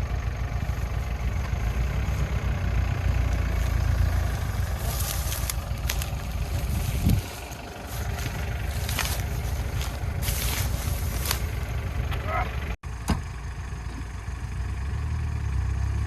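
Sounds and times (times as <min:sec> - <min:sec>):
off-road vehicle engine rumbling: 0:00.0 - 0:16.0.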